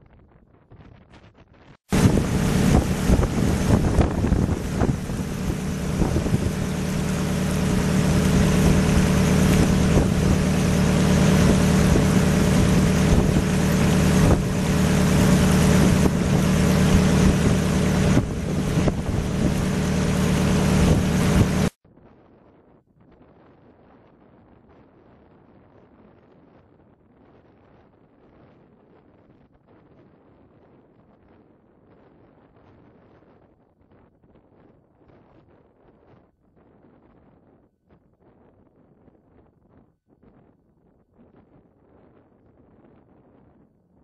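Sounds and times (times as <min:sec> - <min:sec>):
wind buffeting microphone: 0:01.9 - 0:21.7
vehicle engine hum: 0:01.9 - 0:21.8.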